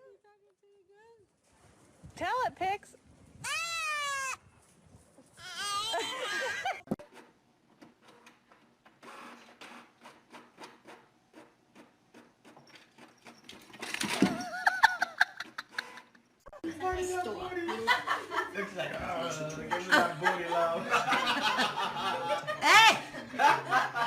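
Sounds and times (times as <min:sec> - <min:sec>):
animal bleat-like calls: 0:03.4 - 0:04.4.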